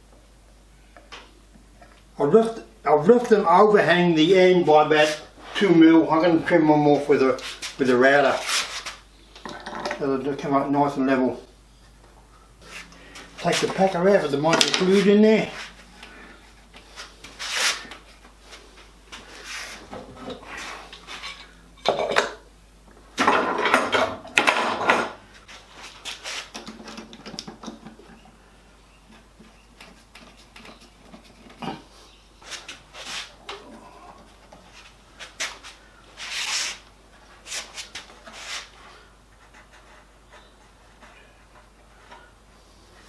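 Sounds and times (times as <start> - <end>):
wooden pieces and tools clattering: 14.5 - 15.1, 23.2 - 25.2.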